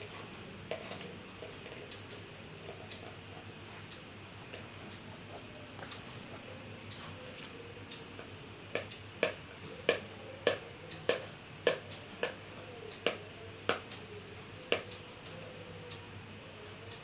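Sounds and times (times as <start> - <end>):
parrot drumming taps: 8.2 - 12.4.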